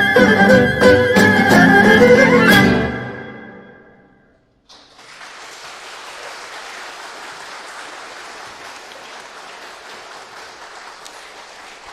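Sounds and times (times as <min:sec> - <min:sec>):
audience applauding: 0:04.7 - 0:11.9.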